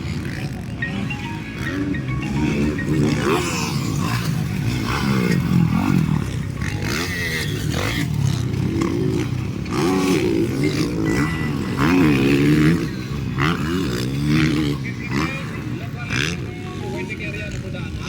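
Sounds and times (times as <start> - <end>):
motocross bike engines revving: 0.0 - 18.0.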